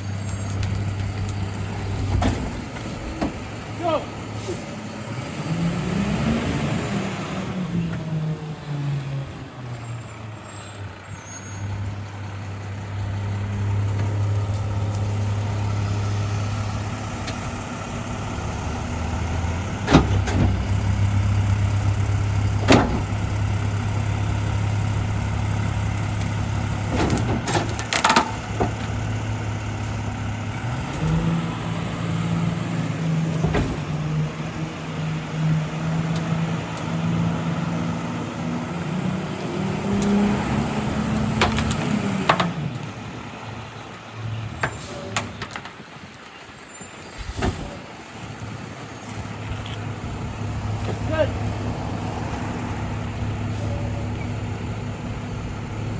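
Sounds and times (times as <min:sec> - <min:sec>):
garbage truck diesel engine: 0:00.0 - 0:55.9.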